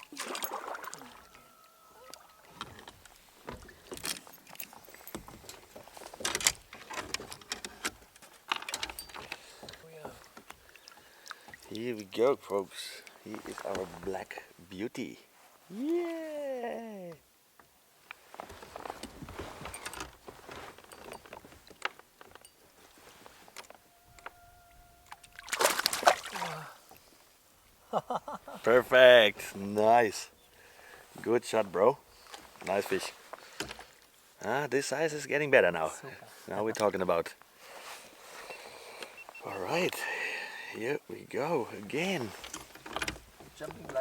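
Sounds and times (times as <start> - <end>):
water splashing: 0.0 - 2.6, 25.0 - 27.2
clicks and knocks on a kayak: 2.6 - 11.7, 33.4 - 34.0, 42.4 - 44.0.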